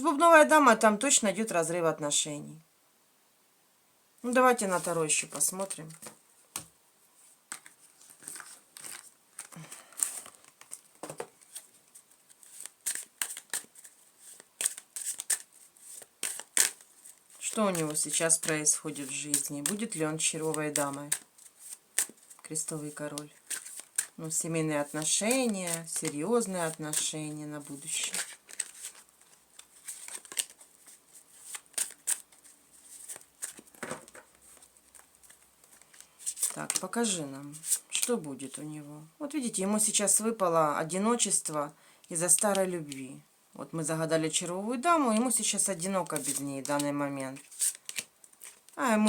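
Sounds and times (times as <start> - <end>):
cards being shuffled: 4.7 - 6.7, 7.5 - 38.1, 45.4 - 48.8.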